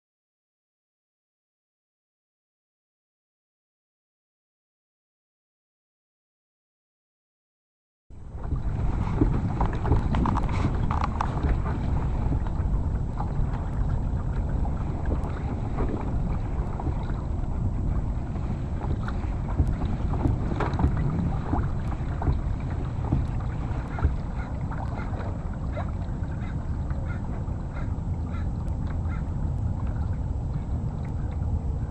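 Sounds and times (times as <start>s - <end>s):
splashes and knocks around kayak: 8.1s - 31.9s
water lapping: 8.1s - 31.9s
wind rumble on microphone: 8.1s - 31.9s.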